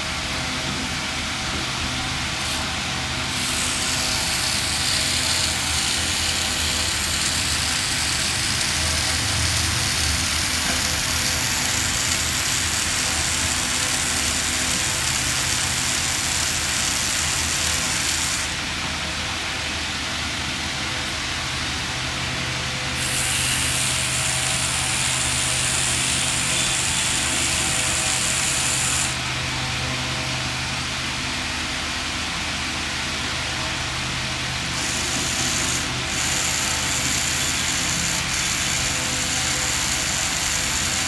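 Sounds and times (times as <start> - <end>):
small motor humming: 2.4 - 18.7, 23.0 - 29.3, 34.7 - 41.0.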